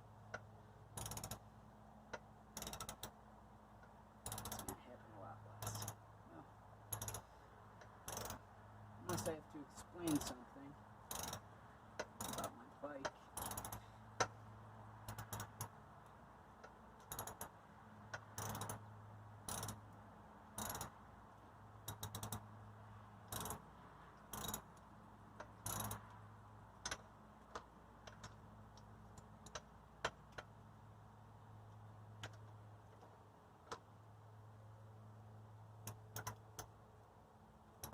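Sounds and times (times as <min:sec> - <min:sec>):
steady low hum: 0:00.0 - 0:37.9
ratchet wrench clicking: 0:01.0 - 0:01.4, 0:02.1 - 0:03.2, 0:04.2 - 0:04.7, 0:05.6 - 0:06.0, 0:06.9 - 0:08.4, 0:11.1 - 0:11.4, 0:12.0 - 0:12.5, 0:13.4 - 0:14.4, 0:15.0 - 0:15.7, 0:17.0 - 0:19.8, 0:20.5 - 0:21.0, 0:21.8 - 0:22.5, 0:23.3 - 0:23.6, 0:24.2 - 0:24.8, 0:25.4 - 0:26.1, 0:35.8 - 0:36.7.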